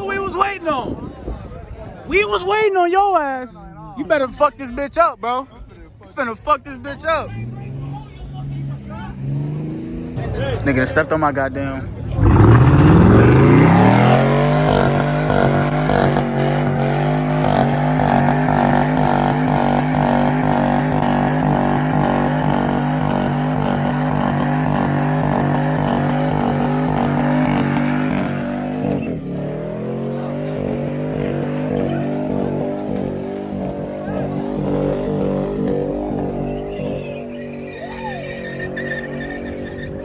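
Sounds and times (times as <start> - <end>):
car engine revving high: 12.0 - 40.0.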